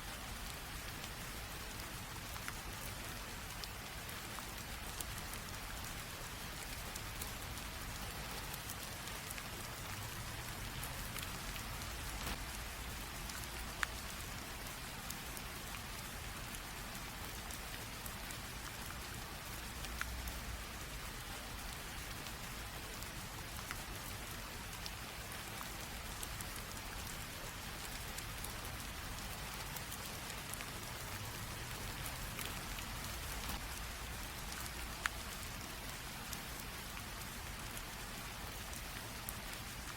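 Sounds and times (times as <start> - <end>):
light rain drizzling: 0.0 - 39.9
single raindrop ticks: 10.8 - 12.6, 31.9 - 33.8.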